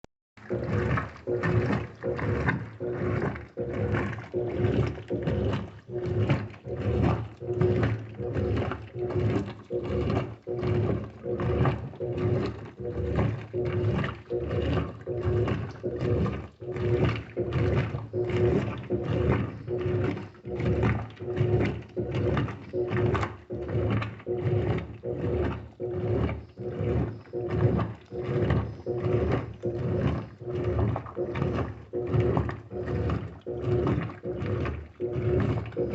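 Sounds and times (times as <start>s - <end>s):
washing machine motor hum: 0.4s - 35.9s
water and clothes swishing: 0.4s - 35.9s.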